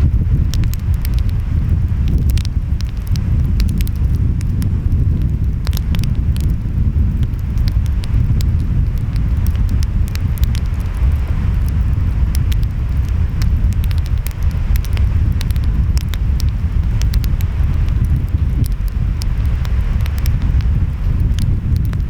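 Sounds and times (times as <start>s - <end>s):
wind: 0.0s - 22.0s
wood fire crackling and popping: 0.0s - 22.0s.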